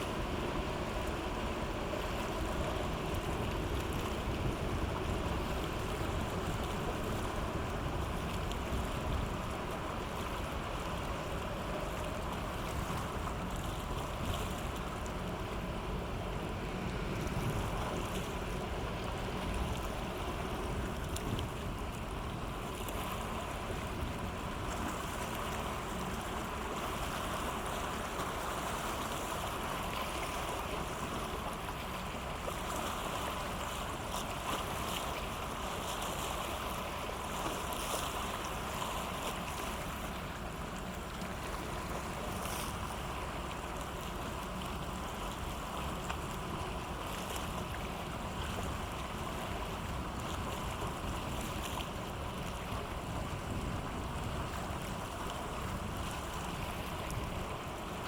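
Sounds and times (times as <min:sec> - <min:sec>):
ship engine humming: 0:00.0 - 0:58.0
wind noise on microphone: 0:49.4 - 0:58.0.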